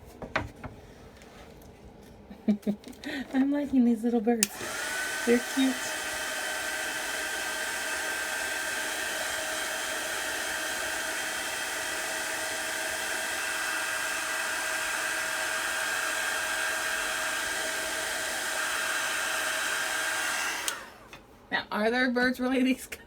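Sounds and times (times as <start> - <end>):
hot-air dryer blowing: 4.4 - 21.3.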